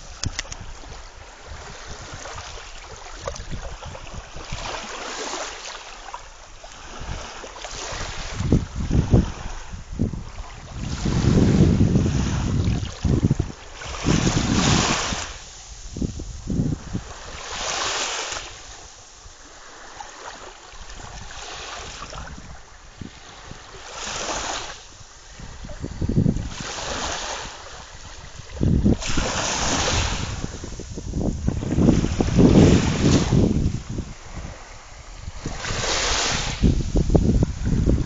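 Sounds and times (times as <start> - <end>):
wind buffeting microphone: 0.0 - 5.4, 6.7 - 38.0
sea waves breaking: 0.0 - 38.0.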